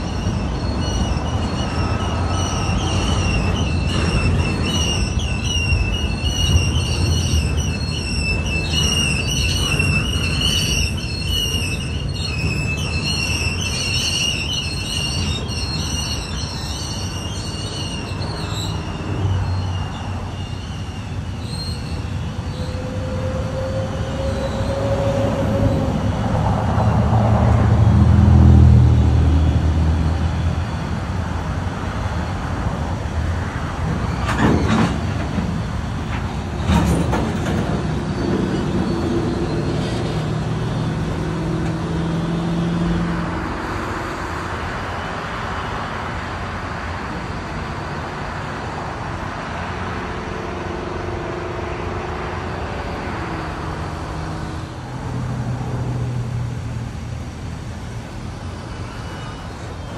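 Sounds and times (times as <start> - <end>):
high wavering squeal: 0.0 - 27.1, 58.3 - 59.9
diesel locomotive engine rumble: 0.0 - 59.9.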